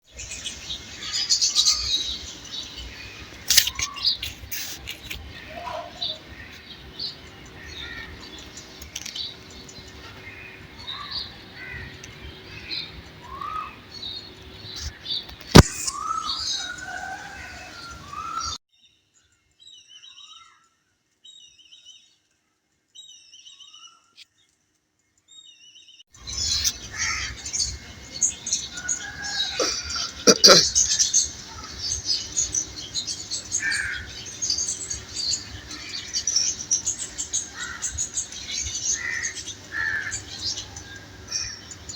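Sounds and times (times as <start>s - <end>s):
background noise: 0.0s - 41.9s
small birds chirping: 0.0s - 41.9s
sharp click: 3.5s - 3.9s, 15.3s - 16.0s.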